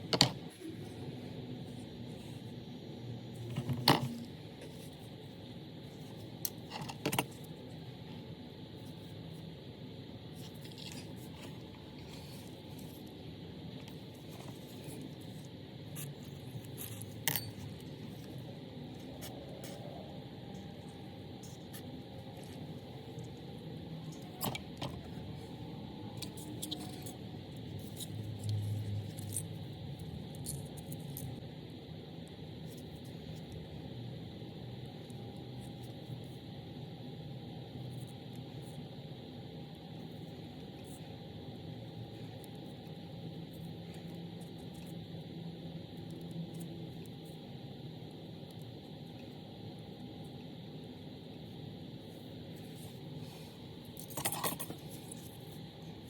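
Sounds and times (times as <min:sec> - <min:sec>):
small metal parts clinking: 0:16.8 - 0:17.6, 0:54.0 - 0:55.3.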